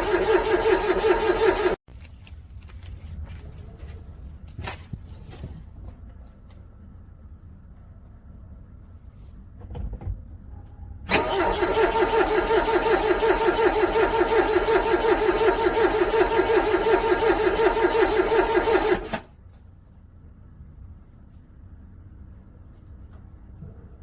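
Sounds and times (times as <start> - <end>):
car engine cranking: 0.0 - 1.8, 11.1 - 19.3.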